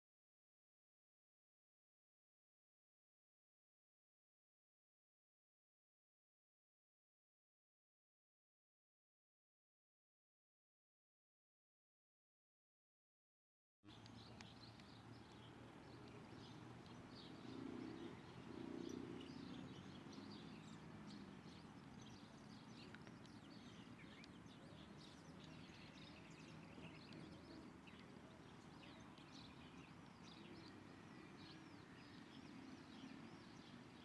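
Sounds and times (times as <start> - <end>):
low background noise: 13.9 - 34.0
small birds chirping: 13.9 - 34.0.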